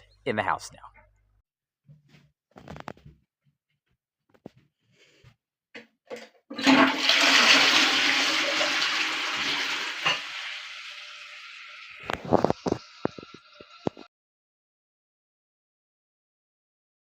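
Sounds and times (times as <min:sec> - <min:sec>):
toilet clicks: 0:05.8 - 0:07.4
toilet flush water rush: 0:06.5 - 0:14.1.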